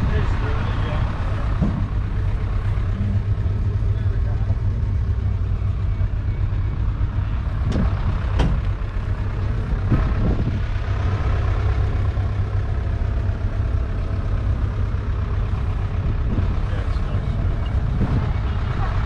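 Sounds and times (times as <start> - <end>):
diesel tractor engine idling: 0.0 - 19.0.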